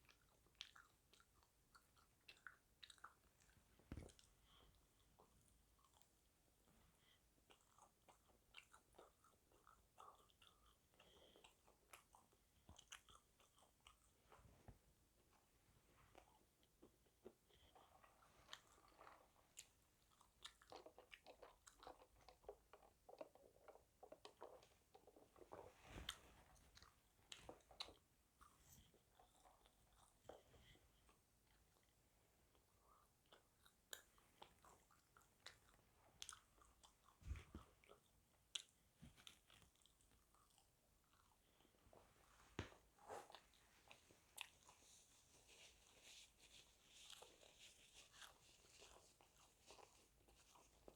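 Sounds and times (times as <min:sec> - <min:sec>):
person chewing crunchy food: 0:00.0 - 0:06.1, 0:07.4 - 0:14.2, 0:16.2 - 0:25.6, 0:32.5 - 0:41.7.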